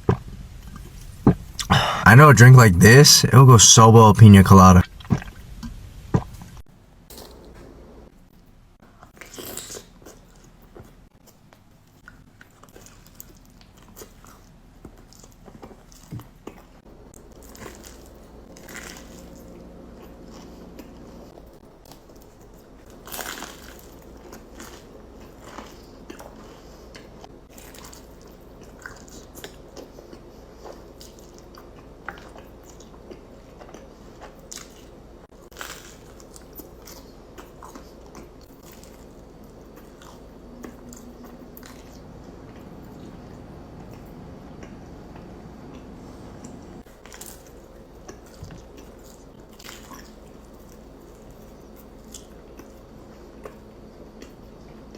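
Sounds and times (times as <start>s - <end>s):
crunchy bites and chewing: 22.9s - 26.4s, 30.9s - 41.0s, 47.0s - 52.8s.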